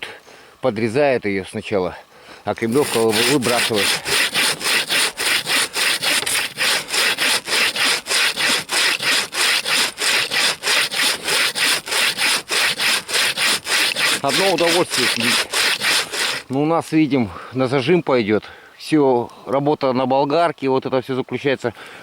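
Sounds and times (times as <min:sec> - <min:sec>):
bow saw cutting log: 0:02.6 - 0:16.6.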